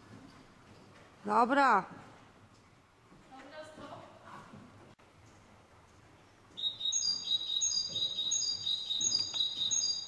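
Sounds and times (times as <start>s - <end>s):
small birds chirping: 6.2s - 10.0s.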